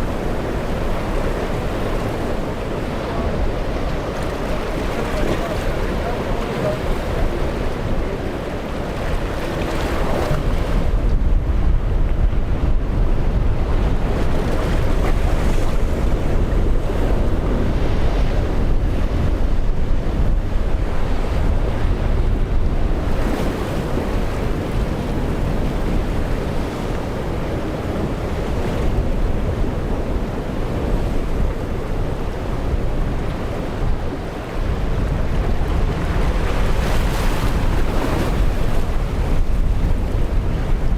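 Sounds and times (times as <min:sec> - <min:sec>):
rough surf rushing: 0:00.0 - 0:40.9
wind buffeting microphone: 0:00.0 - 0:40.9.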